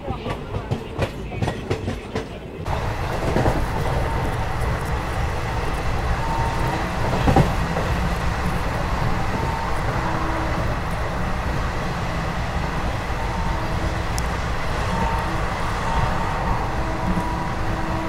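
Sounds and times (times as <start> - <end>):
train wheels clicking over rail joints: 0.0 - 18.0
train wind and rolling noise: 0.0 - 18.0.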